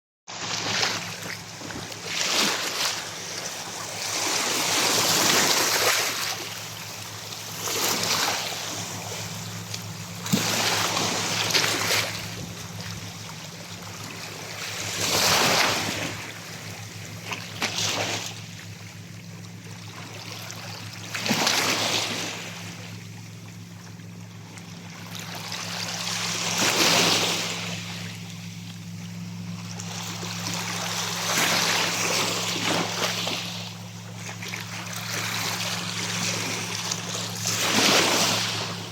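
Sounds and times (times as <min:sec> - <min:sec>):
waves washing onto beach: 0:00.3 - 0:19.0
steady low hum: 0:00.3 - 0:38.9.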